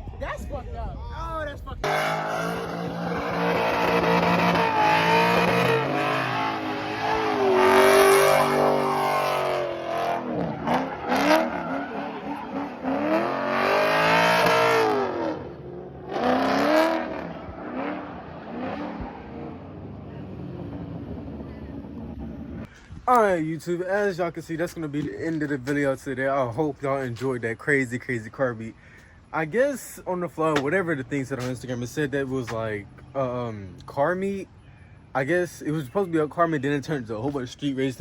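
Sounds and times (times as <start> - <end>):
car engines revving: 1.8 - 22.7.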